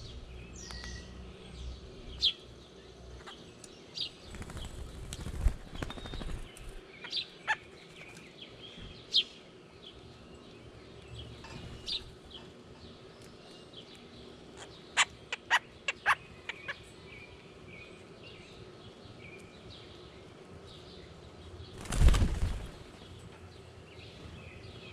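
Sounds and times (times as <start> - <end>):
small birds' wings flapping: 4.1 - 6.8, 21.7 - 23.2.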